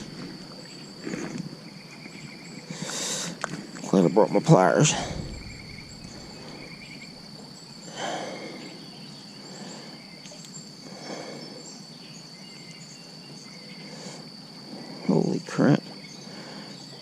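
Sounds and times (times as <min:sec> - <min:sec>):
insects trilling: 0:00.0 - 0:17.0
soft swishes: 0:04.9 - 0:07.4.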